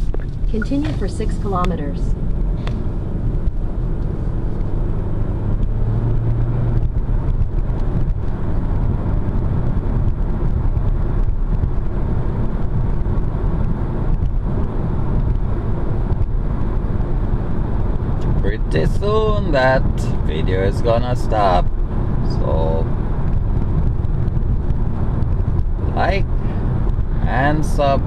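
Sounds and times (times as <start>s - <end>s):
car engine hum: 0.0s - 28.0s
tyre and road noise: 0.0s - 28.0s.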